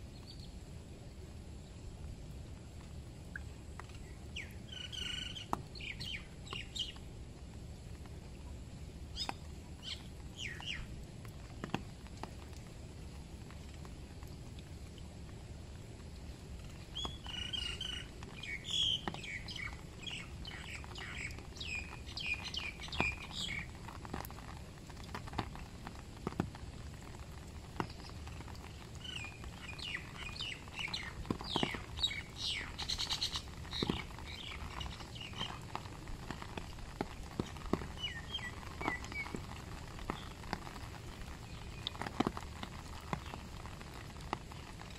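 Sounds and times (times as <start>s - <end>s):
steady rain: 0.0s - 44.9s
water dripping: 1.7s - 44.9s
birds chirping: 4.0s - 7.0s, 9.2s - 10.9s, 16.7s - 23.8s, 28.9s - 35.8s, 37.3s - 40.7s.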